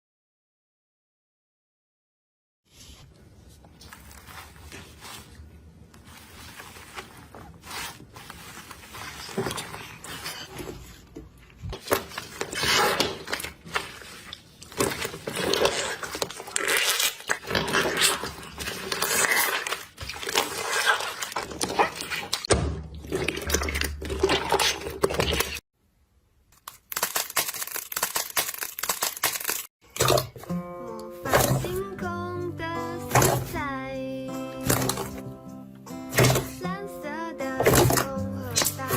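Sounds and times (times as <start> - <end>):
slime crackling and popping: 26.7 - 29.7.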